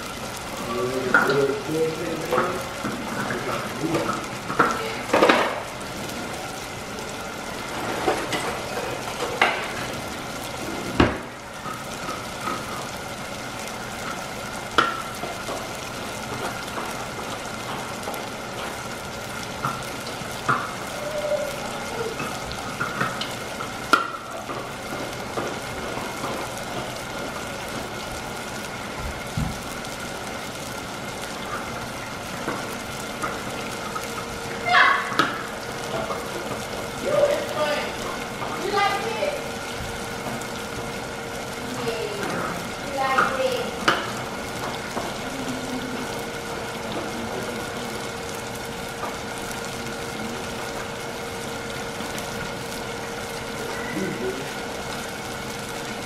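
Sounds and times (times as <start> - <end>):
food sizzling in a pan: 0.0 - 56.0
pots and utensils clinking: 0.8 - 5.8, 7.6 - 10.0.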